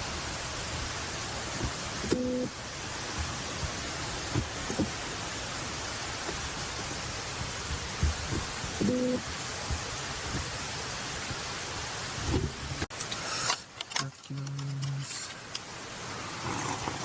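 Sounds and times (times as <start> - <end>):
steady outdoor hiss: 0.0 - 17.0.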